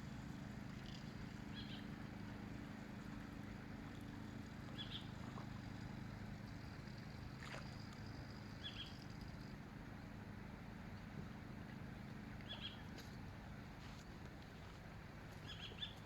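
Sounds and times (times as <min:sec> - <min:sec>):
faint low mechanical hum: 0:00.0 - 0:16.0
small bird chirping: 0:08.4 - 0:09.5, 0:12.4 - 0:12.8, 0:15.4 - 0:16.0.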